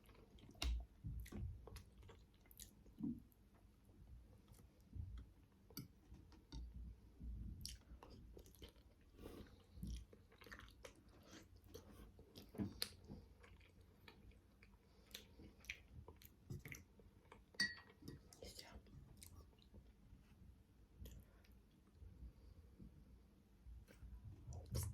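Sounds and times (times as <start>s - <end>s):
chewing dumplings close up: 0.0s - 6.7s, 7.4s - 18.4s.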